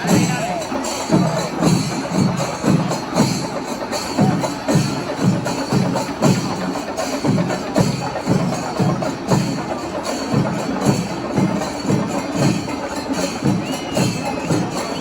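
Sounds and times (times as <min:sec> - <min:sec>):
drums beating steadily: 0:00.0 - 0:15.0.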